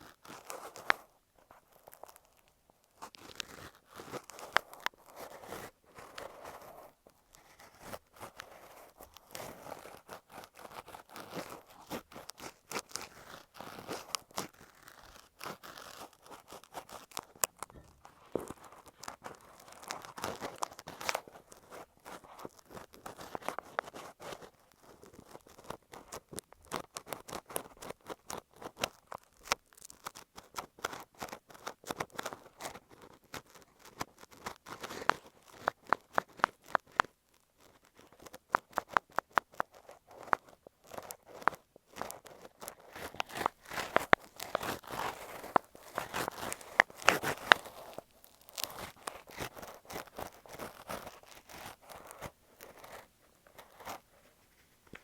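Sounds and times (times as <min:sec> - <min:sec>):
ear pick scraping a microphone: 0:40.9 - 0:55.0.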